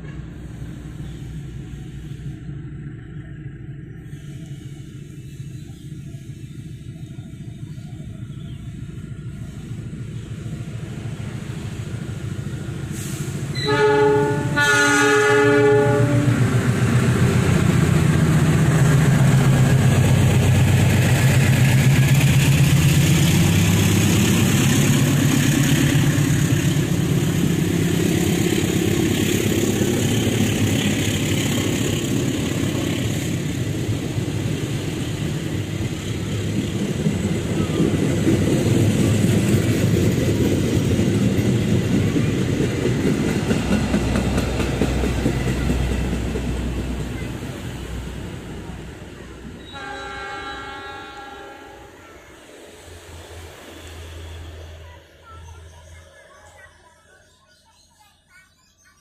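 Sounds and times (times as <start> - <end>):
train engine and wheels rumbling: 0.0 - 59.0
train horn blasts: 13.5 - 16.6, 49.6 - 52.0.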